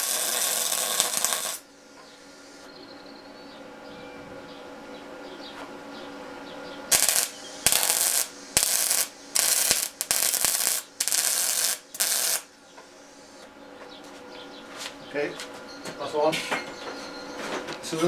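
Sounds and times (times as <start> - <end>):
welder crackling hiss bursts: 0.0 - 1.6, 6.9 - 12.5.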